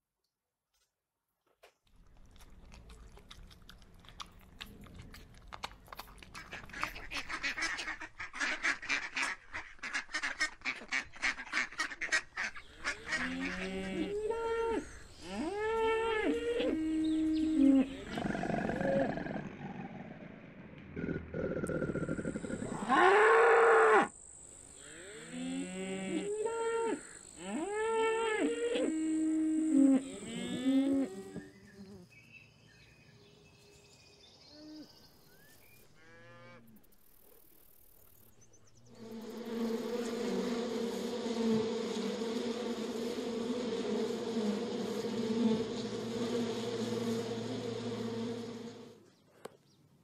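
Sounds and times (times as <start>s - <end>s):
cattle mooing: 29.6s - 31.4s
honeybees buzzing: 38.9s - 49.0s.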